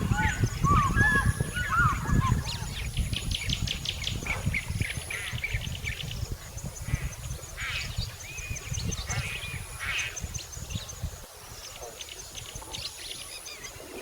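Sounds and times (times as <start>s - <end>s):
birds chirping: 0.0s - 6.1s.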